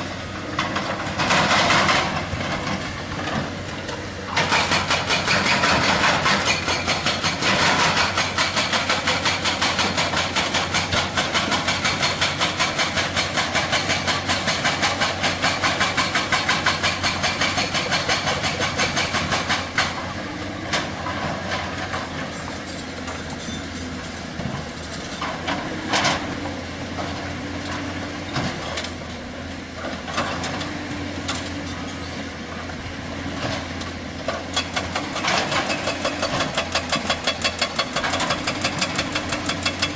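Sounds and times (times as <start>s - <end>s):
diesel engine running: 0.0s - 39.9s
hydraulic breaker hammering rock: 0.5s - 23.3s, 34.4s - 39.9s.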